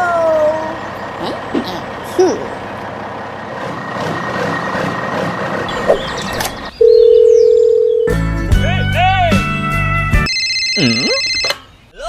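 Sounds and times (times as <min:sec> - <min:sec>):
vehicle noise with whine: 0:00.0 - 0:08.1.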